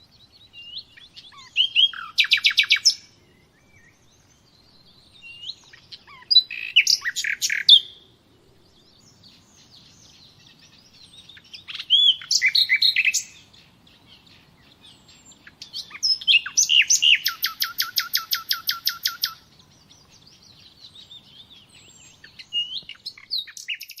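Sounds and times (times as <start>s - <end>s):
songbird singing: 0.0s - 24.0s.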